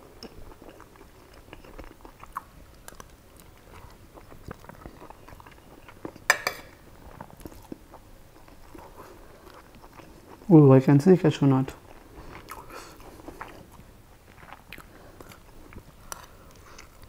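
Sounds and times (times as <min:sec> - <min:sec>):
close-up chewing: 0:00.2 - 0:06.3, 0:07.0 - 0:10.6, 0:11.8 - 0:17.0
metal spoon clinking on plate: 0:06.3 - 0:06.8.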